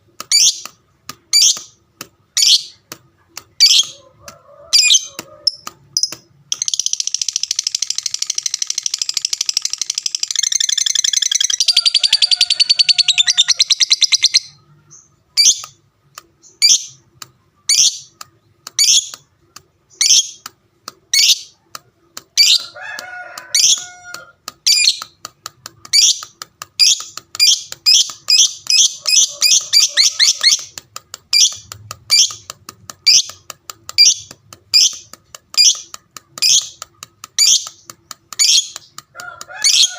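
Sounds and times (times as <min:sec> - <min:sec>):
lovebird chattering trill: 0:04.8 - 0:15.8, 0:25.9 - 0:33.4, 0:34.0 - 0:36.8, 0:37.4 - 0:37.8
sharp bird chirps: 0:04.8 - 0:15.8, 0:26.0 - 0:32.4.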